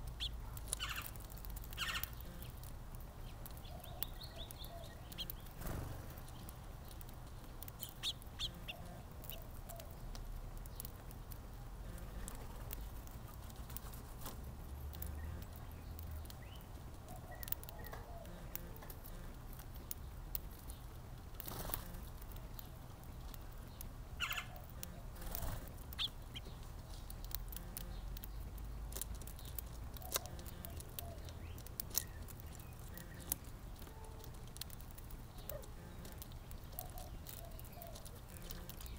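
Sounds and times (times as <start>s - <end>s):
birds tapping: 0.0s - 38.9s
wings fluttering: 0.2s - 2.7s, 5.0s - 9.9s, 11.9s - 15.6s, 21.3s - 22.4s, 24.2s - 26.8s, 28.9s - 38.9s
bird chirps: 1.8s - 2.6s, 3.2s - 6.5s, 23.7s - 26.6s, 36.7s - 38.9s.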